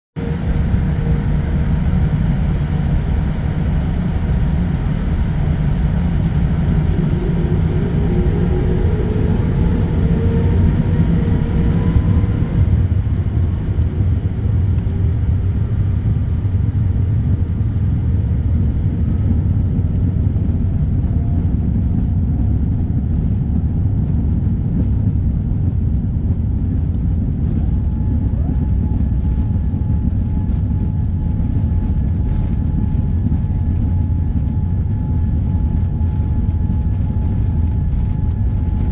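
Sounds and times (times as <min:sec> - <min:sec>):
faint rising whines: 0:00.2 - 0:16.4
jet engine rumble in cabin: 0:00.2 - 0:38.9.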